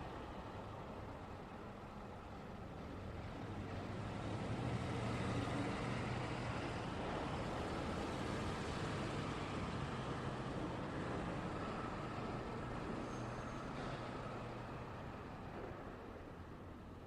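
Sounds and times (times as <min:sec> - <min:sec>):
vehicles driving past: 0:00.0 - 0:17.0.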